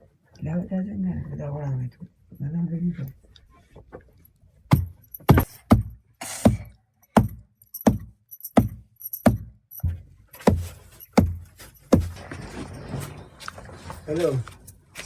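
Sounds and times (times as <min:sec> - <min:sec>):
heavy thudding strikes: 0:04.7 - 0:12.2.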